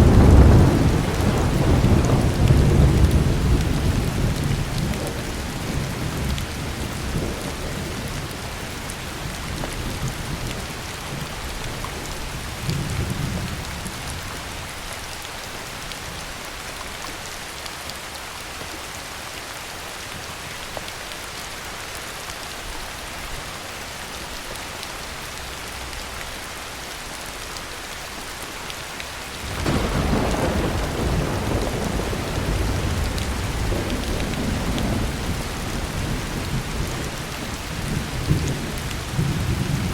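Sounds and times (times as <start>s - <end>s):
thunder rolling: 0.0s - 7.8s, 29.4s - 39.9s
heavy rain: 0.0s - 39.9s.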